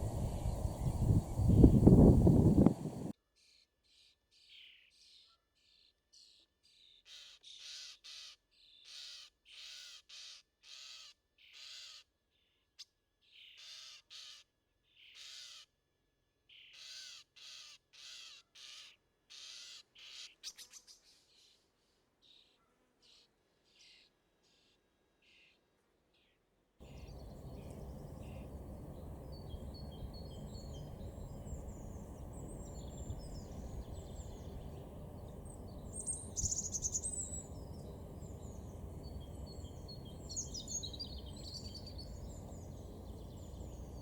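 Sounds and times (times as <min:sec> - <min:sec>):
bird calling repeated notes: 0:26.9 - 0:43.8.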